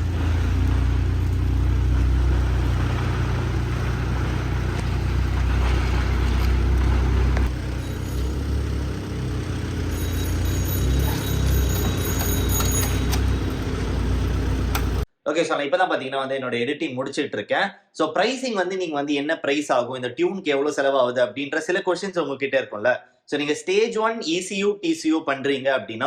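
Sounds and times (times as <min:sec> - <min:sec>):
car engine and road noise: 0:00.0 - 0:15.1.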